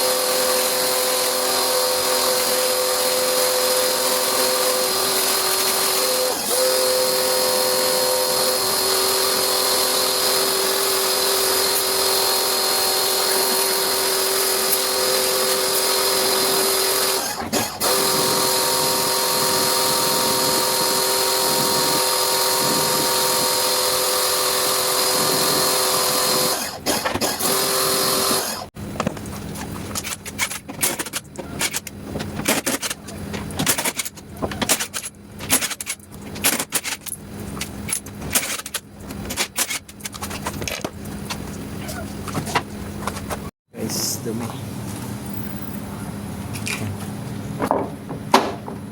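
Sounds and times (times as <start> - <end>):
power tool motor whining: 0.0 - 28.8.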